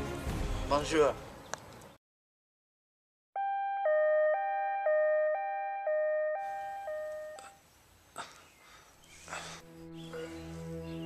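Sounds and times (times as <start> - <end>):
electronic two-tone signal: 3.4 - 7.6.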